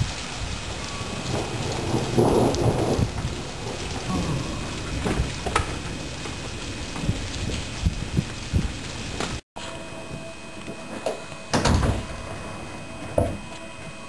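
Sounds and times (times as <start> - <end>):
raindrops tapping: 0.0 - 9.4
steady rain: 0.0 - 14.0
thunder rumble: 0.0 - 14.0.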